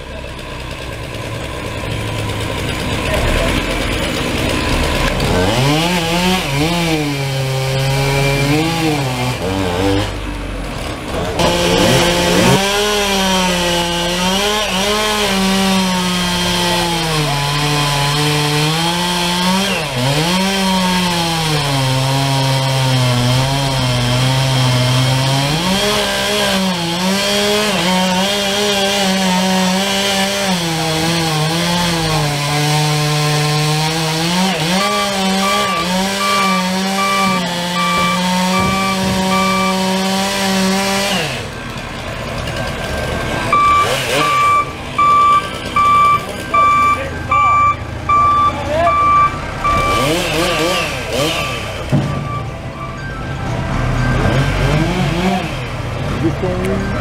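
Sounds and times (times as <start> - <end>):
chainsaw cutting wood: 0.0 - 47.0, 49.6 - 52.3, 54.1 - 56.8.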